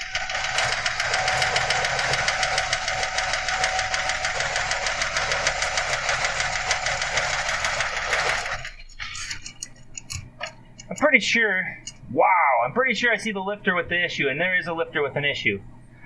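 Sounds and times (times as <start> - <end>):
engine lifters ticking: 0.0 - 12.1.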